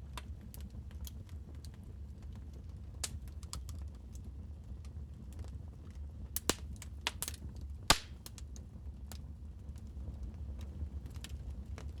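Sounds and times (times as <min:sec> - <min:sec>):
wood fire crackling: 0:06.4 - 0:08.4.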